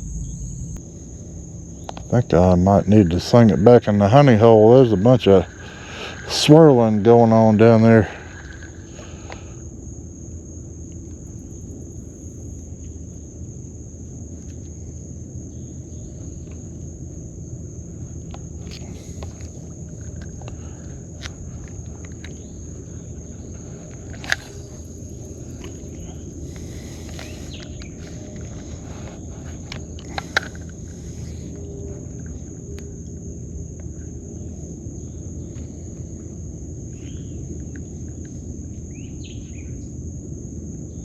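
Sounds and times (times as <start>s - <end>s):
insect high thin trill: 0.0s - 0.8s, 22.4s - 32.4s
low background rumble: 0.0s - 41.0s.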